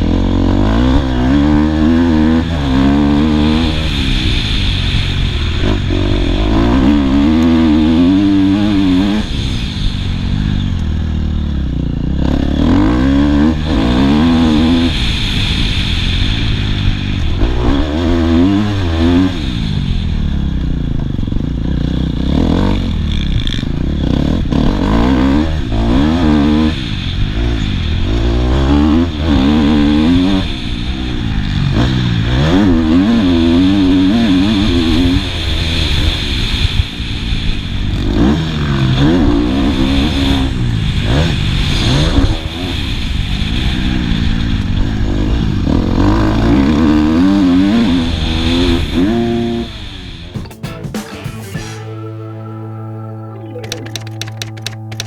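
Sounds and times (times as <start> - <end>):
motocross bike engine revving: 0.0 - 52.0
bike rattling clatter: 53.6 - 55.0.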